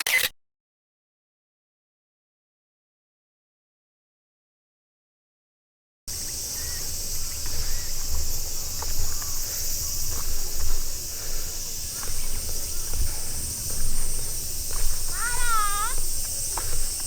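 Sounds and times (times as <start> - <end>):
high-pitched insect chorus: 6.1 - 17.0
low uneven rumble: 6.1 - 17.0.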